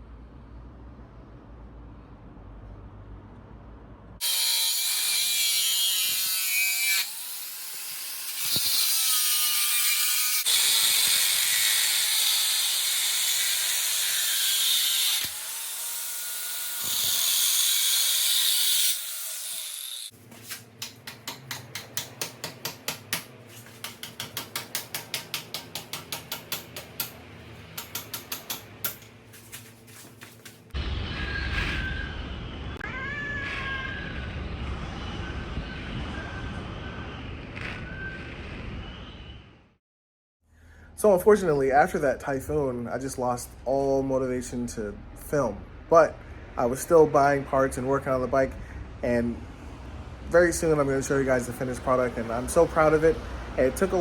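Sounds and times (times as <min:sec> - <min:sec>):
low hum: 0:30.8 - 0:32.8
loud hissing with wavering whistle: 0:31.0 - 0:32.6.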